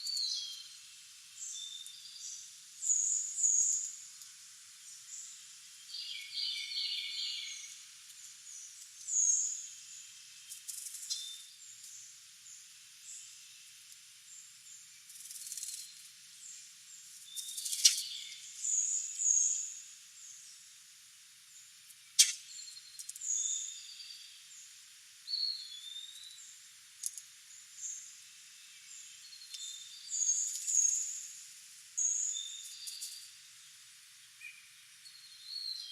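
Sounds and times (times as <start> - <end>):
steady high hiss: 0.0 - 35.9
songbirds calling: 4.9 - 7.8, 8.4 - 20.4, 21.5 - 31.3.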